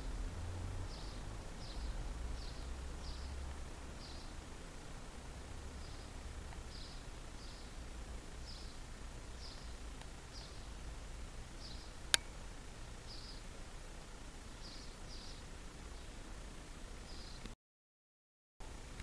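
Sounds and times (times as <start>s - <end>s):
low steady rumble: 0.0s - 17.6s
small bird chirping: 0.8s - 4.4s, 5.7s - 10.8s, 11.5s - 12.4s, 13.0s - 13.6s, 14.5s - 16.2s, 17.0s - 17.6s
sharp click: 12.1s - 12.4s.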